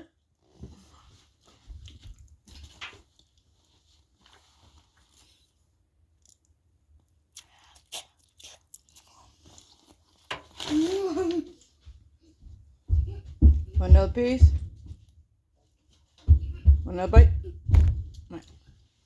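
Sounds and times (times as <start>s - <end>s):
person chewing: 6.2s - 10.7s.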